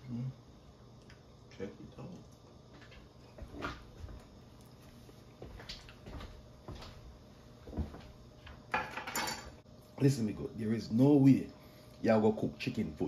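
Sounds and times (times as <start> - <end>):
cookware knocks and clacks: 8.7 - 9.6.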